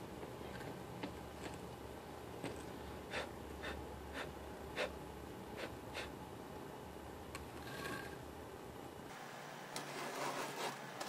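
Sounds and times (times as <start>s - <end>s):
sand scraping on wooden mold: 9.8s - 11.0s.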